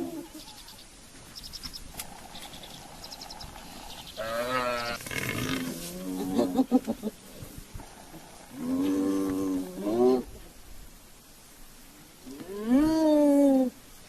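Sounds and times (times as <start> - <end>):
buffalo calf bleating: 4.2 - 6.4.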